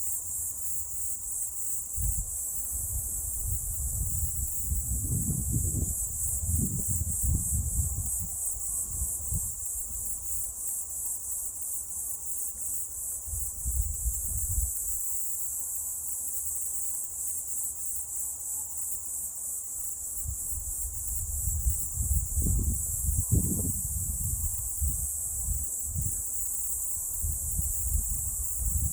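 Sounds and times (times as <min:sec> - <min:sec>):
insects chirping in pulsing trill: 0:00.0 - 0:28.9
wind rumbling on microphone: 0:01.9 - 0:10.4, 0:13.3 - 0:15.0, 0:20.2 - 0:28.9.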